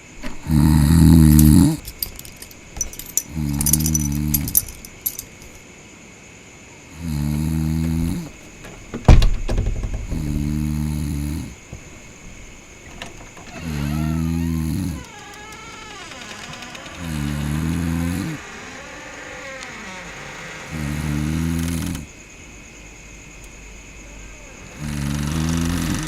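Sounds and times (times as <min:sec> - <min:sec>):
person snoring: 0:00.4 - 0:01.9, 0:03.3 - 0:04.6, 0:07.0 - 0:08.4, 0:10.2 - 0:11.6, 0:13.6 - 0:15.1, 0:17.0 - 0:18.4, 0:20.7 - 0:22.1, 0:24.7 - 0:26.0.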